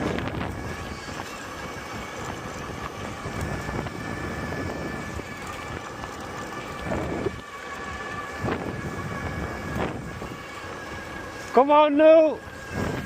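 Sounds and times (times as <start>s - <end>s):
faint high motor whine: 0.0s - 13.0s
wind buffeting microphone: 0.0s - 13.0s.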